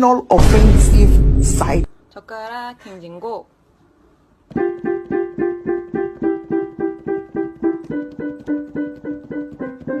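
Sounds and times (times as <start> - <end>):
repeated piano note: 4.5 - 10.0.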